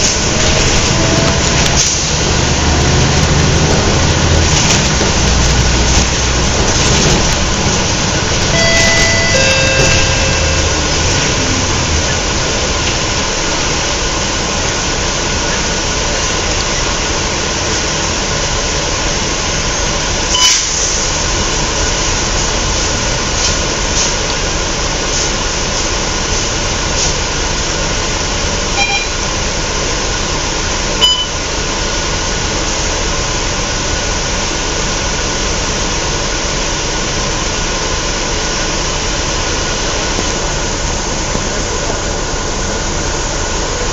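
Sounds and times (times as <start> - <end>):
road and body noise: 0.0 - 20.1
bus diesel engine running: 0.0 - 43.9.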